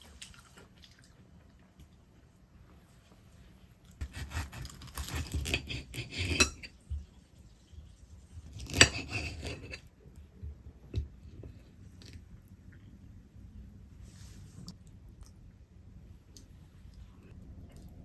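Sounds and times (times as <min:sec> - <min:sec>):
dishes and cutlery clattering: 0:05.4 - 0:06.8.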